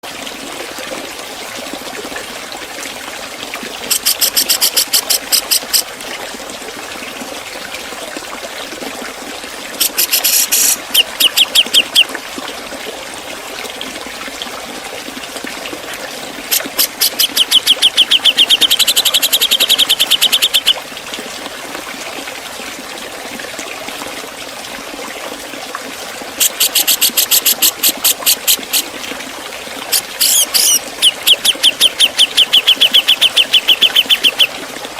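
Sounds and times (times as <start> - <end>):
bird rapid high-pitched notes: 3.9 - 5.8, 9.8 - 12.0, 16.5 - 20.8, 26.4 - 28.8, 29.9 - 34.5.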